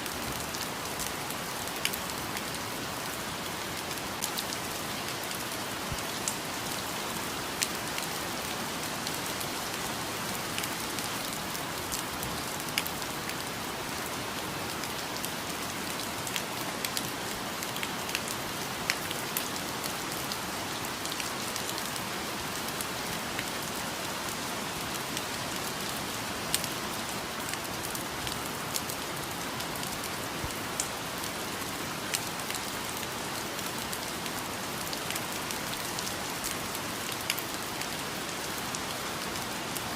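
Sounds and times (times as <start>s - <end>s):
raindrops ticking on leaves: 0.0s - 39.9s
steady rain hiss: 0.0s - 39.9s.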